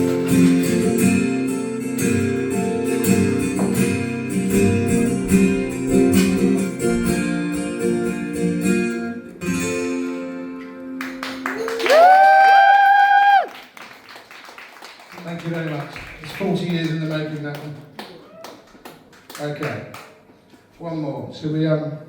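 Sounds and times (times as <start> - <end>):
acoustic guitar strummed: 0.0 - 11.4
person calling out whoo: 11.6 - 13.5.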